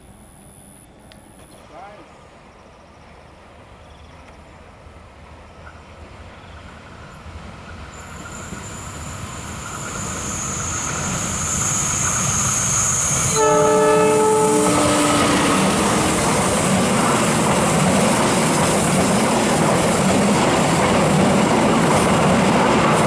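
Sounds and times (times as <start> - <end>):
diesel train rumbling: 1.6 - 23.0
train horn blast: 13.3 - 16.2.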